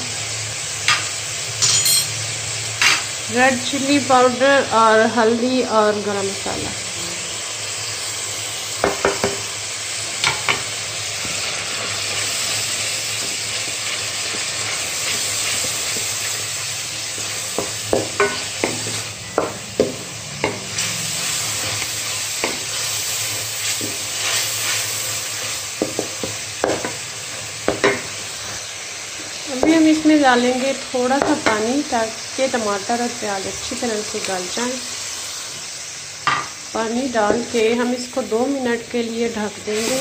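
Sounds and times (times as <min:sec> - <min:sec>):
masala sizzling in oil: 0:00.0 - 0:40.0
spoon knocking and scraping pan: 0:08.8 - 0:09.4, 0:17.1 - 0:20.8, 0:22.4 - 0:22.8, 0:25.8 - 0:27.0, 0:27.6 - 0:28.1, 0:37.2 - 0:37.6.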